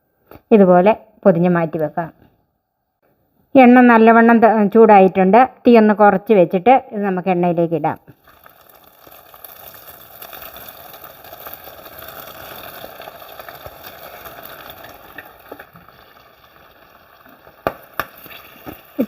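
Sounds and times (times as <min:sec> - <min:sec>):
food sizzling in hot oil: 0:08.1 - 0:19.0.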